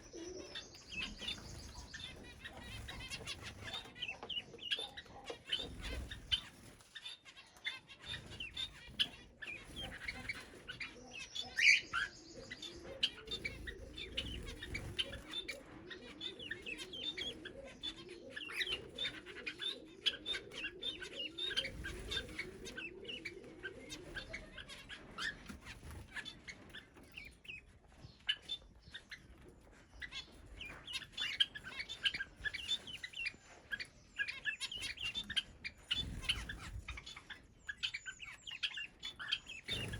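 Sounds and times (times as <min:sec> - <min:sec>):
birds chirping: 0:00.0 - 0:39.9
wing flutters: 0:13.0 - 0:15.8, 0:34.8 - 0:37.3, 0:39.6 - 0:39.9.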